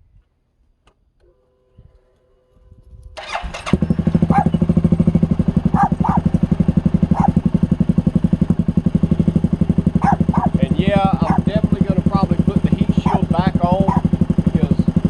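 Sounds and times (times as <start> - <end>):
atv engine starting and idling: 3.0 - 15.0.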